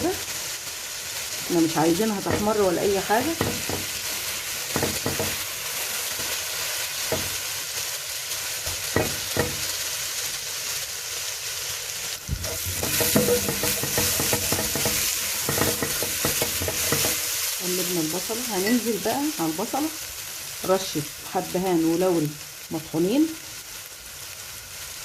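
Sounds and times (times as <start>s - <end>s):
onion sizzling in hot oil: 0.0s - 25.0s
spoon knocking pot: 2.2s - 2.6s, 3.3s - 4.0s, 4.7s - 5.4s, 8.7s - 9.6s, 12.4s - 17.2s.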